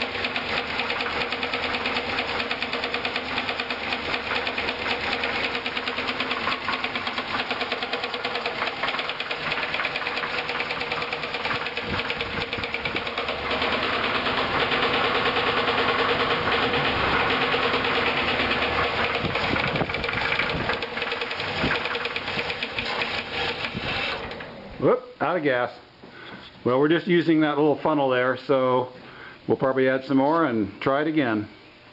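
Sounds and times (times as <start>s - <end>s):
car engine running with knock: 0.0s - 23.8s.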